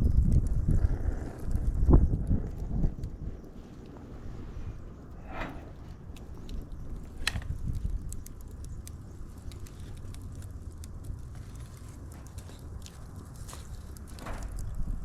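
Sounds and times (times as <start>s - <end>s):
wood fire crackling: 0.3s - 15.0s.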